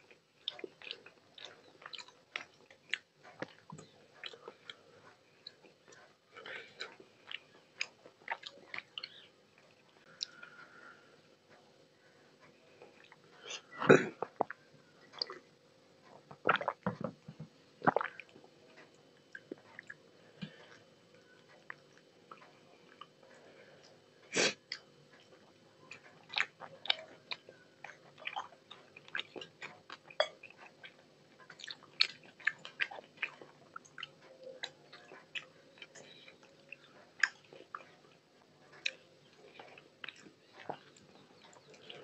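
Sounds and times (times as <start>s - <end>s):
wet chewing and lip smacks: 0.1s - 10.6s, 24.7s - 42.0s.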